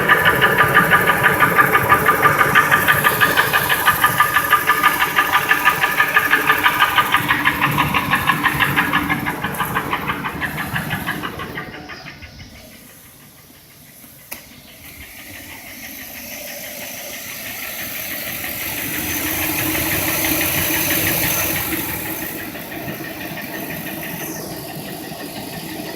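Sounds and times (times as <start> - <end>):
engine idle knock tapping: 0.0 - 25.9
broad hissing rush: 12.6 - 25.9.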